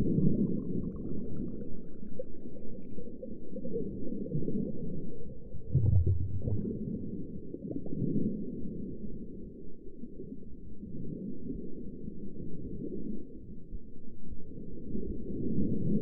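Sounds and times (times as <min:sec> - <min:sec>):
bubbly gurgling: 0:00.0 - 0:08.4
muffled underwater rumbling: 0:00.0 - 0:16.0
deep low hum: 0:05.5 - 0:07.8.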